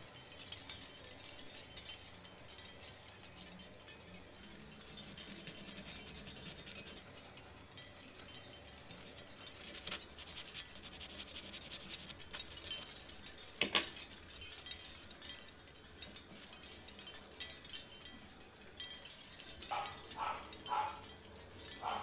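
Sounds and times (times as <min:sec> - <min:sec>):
metal file scraping metal: 0:04.8 - 0:07.8.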